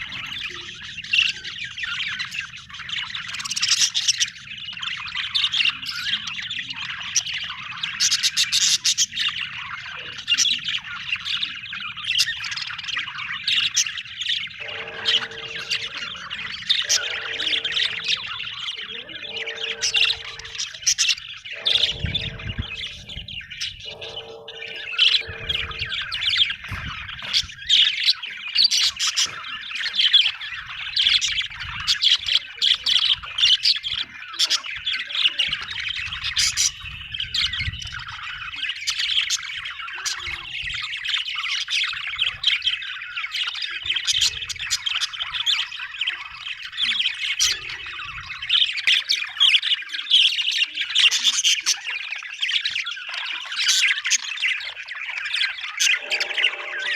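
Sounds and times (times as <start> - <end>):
parrots chattering: 0.0 - 56.9
low steady tone: 14.6 - 20.8, 21.5 - 26.4, 55.9 - 56.9.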